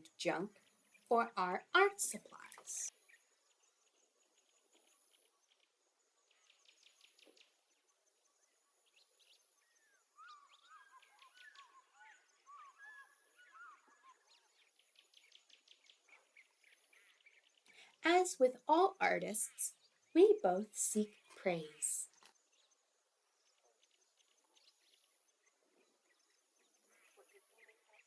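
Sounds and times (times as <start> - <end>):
faint birdsong trills: 2.3 - 18.6
birds chirping and warbling: 6.3 - 18.5.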